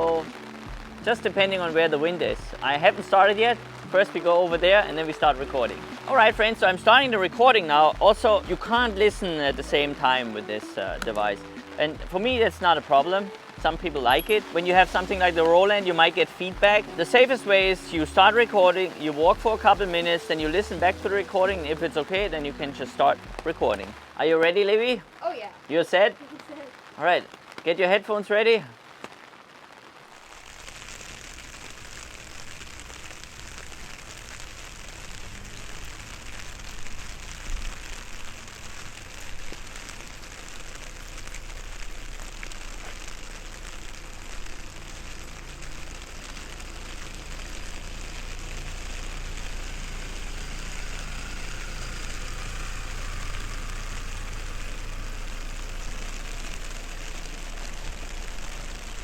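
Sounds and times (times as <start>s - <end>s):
rain pattering on an umbrella: 0.0s - 59.0s
low steady rumble: 30.7s - 59.0s.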